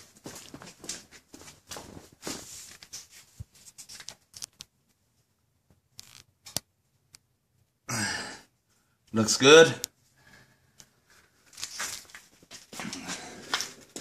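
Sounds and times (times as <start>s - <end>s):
rustling and scraping: 0.0s - 4.7s, 11.0s - 14.0s.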